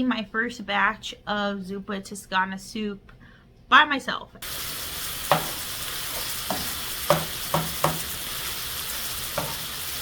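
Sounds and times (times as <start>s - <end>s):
sausage sizzling in a pan: 4.4s - 10.0s
utensil scraping a pan: 5.2s - 9.9s.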